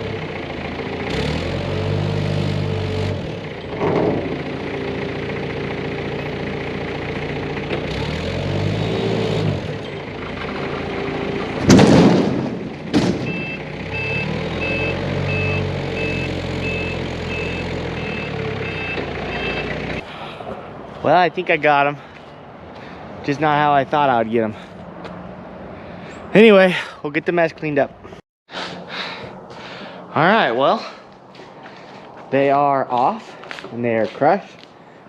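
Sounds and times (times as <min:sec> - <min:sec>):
loader diesel engine revving: 0:00.0 - 0:20.8
plastic tanks crashing and crunching: 0:11.5 - 0:13.4
reversing alarm beeping: 0:13.2 - 0:19.8.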